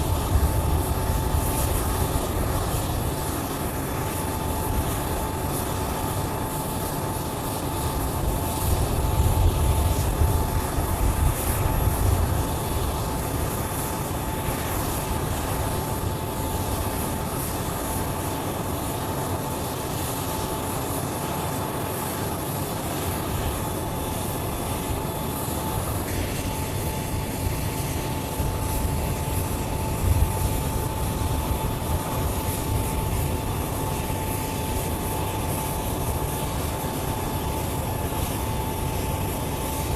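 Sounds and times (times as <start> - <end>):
jet engines rumbling and whining: 0.0 - 39.9.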